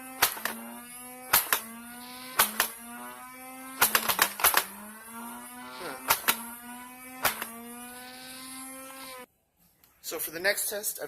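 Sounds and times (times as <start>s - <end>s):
toy darts firing clacks: 0.0s - 2.9s, 3.7s - 4.8s, 5.8s - 7.8s
flywheel motors whining: 0.0s - 9.3s.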